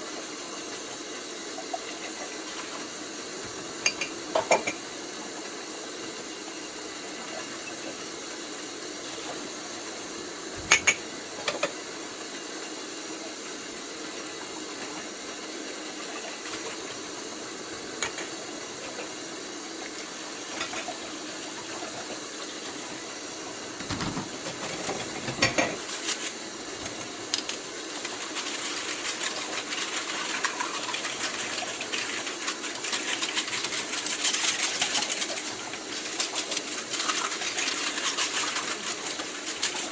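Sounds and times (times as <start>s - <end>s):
water hissing in sink: 0.0s - 39.9s
dishes clinking: 3.8s - 4.8s, 10.6s - 11.8s, 23.8s - 25.9s.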